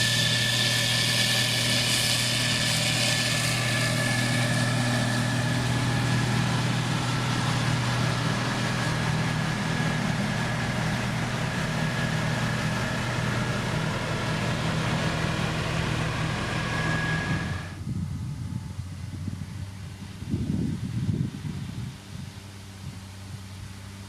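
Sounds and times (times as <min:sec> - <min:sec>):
thin high whine: 0:00.0 - 0:17.9
diesel engine running: 0:00.0 - 0:24.0.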